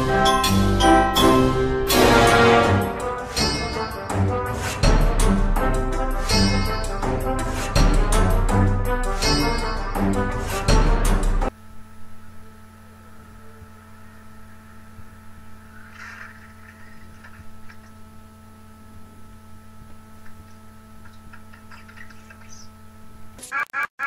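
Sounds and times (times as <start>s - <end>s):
loud music: 0.0s - 11.5s
electrical hum: 0.0s - 24.0s.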